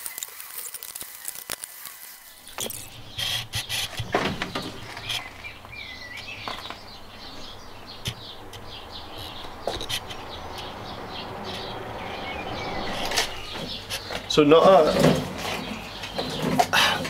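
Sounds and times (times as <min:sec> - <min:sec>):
birds chirping: 0:00.0 - 0:17.0
sharp clicks and knocks: 0:08.0 - 0:10.7.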